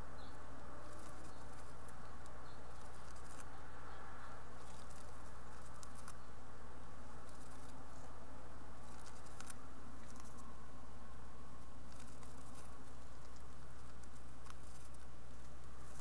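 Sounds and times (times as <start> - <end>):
steady low hum: 0.0 - 16.0
birds scratching on wood: 0.4 - 10.6, 11.6 - 16.0.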